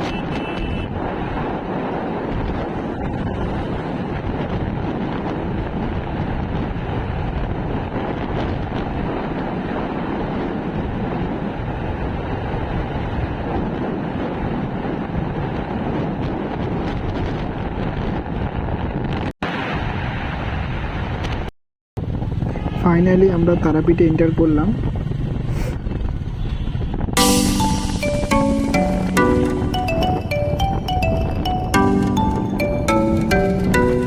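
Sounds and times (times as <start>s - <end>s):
wind rushing over microphone: 0.0s - 28.6s
road noise: 0.0s - 34.0s.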